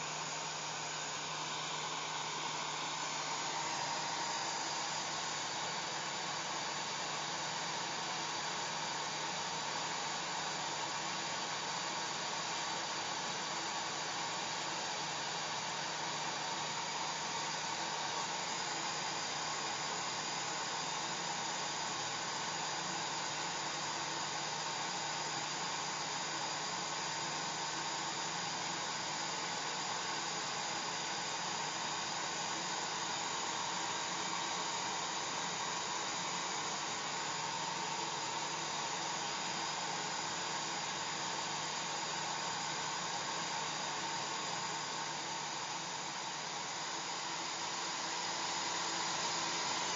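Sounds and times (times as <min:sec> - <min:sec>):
hair dryer blowing: 0:00.0 - 0:08.9, 0:28.3 - 0:49.9.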